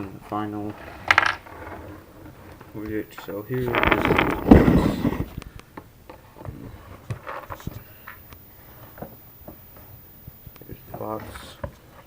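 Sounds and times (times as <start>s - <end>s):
plastic parts clattering: 3.5s - 5.3s.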